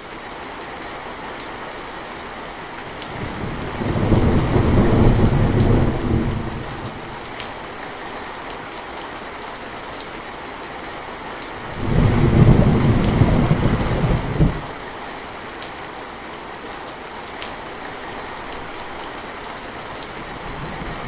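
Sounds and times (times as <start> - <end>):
steady rain falling: 0.0 - 21.0
low rumble of thunder: 3.0 - 7.5, 11.6 - 14.8, 20.2 - 21.0.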